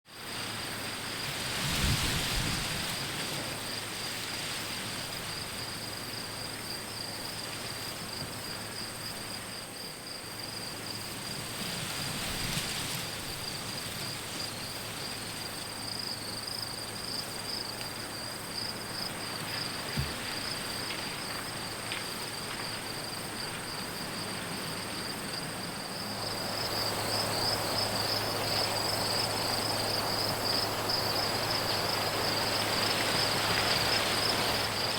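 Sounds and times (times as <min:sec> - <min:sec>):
background hiss: 0:00.1 - 0:34.9
insects trilling: 0:00.2 - 0:34.9
wind rushes: 0:01.2 - 0:03.7.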